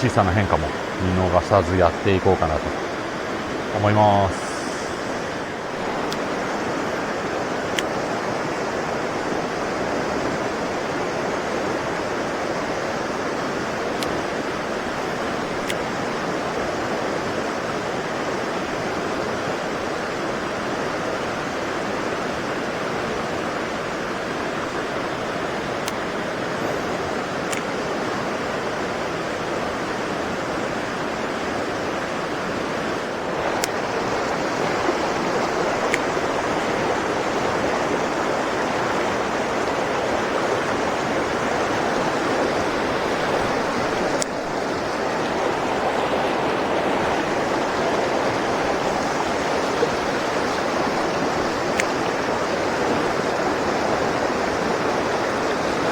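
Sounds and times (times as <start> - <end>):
stream rushing water: 0.0 - 55.9
faint sharp clicks: 6.0 - 6.4, 7.7 - 8.1, 15.2 - 16.0, 25.8 - 26.2, 27.4 - 27.8, 33.5 - 34.0, 35.4 - 36.6, 42.6 - 44.6, 51.3 - 52.2.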